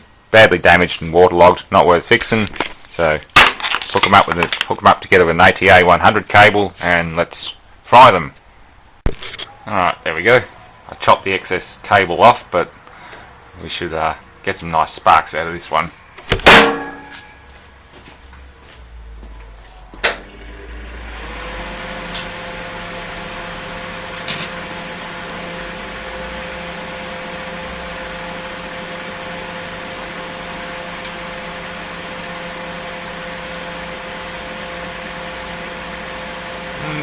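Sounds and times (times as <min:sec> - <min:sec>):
microwave oven humming: 0:20.0 - 0:37.0.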